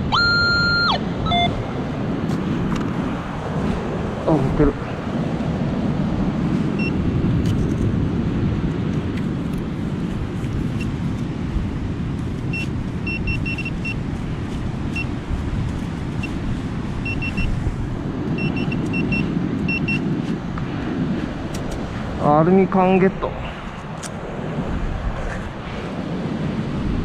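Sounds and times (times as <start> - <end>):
metal detector beeps: 0.1 - 1.6, 6.8 - 7.0, 12.5 - 14.0, 14.9 - 15.1, 16.2 - 16.4, 17.0 - 17.6, 18.4 - 20.0.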